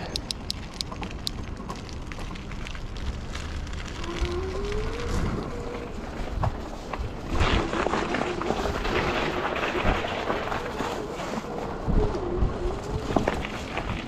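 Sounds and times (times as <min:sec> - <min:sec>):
wind buffeting microphone: 0:02.8 - 0:14.0.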